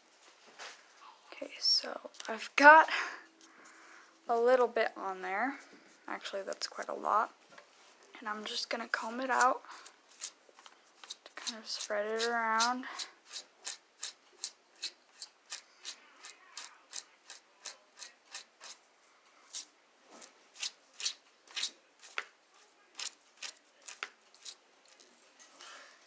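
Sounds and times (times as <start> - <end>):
comb strokes through hair: 9.1 - 18.8.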